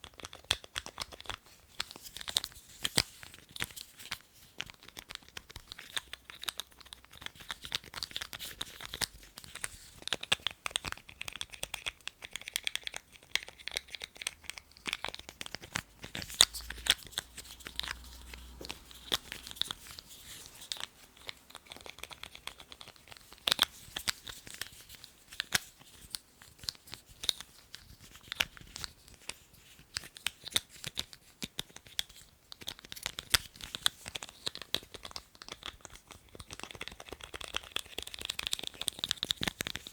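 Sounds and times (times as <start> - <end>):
crinkling scrapes: 14.7 - 30.0.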